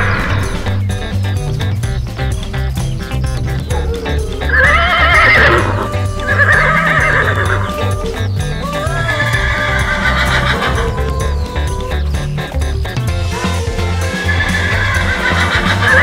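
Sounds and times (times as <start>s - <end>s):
background music with steady beat: 0.0s - 16.0s
horse neighing: 3.8s - 11.9s, 13.7s - 16.0s.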